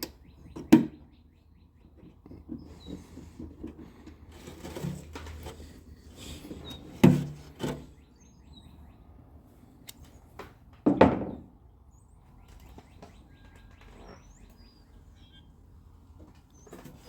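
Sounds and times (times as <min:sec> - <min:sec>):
faint bird chirps: 0:11.9 - 0:15.6.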